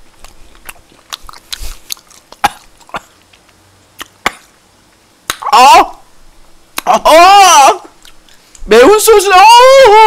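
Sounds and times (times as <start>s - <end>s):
person chewing with mouth smacks: 0.0s - 4.6s, 8.0s - 8.6s
sharp mouth clicks: 0.2s - 4.6s, 6.7s - 6.9s, 8.0s - 8.6s.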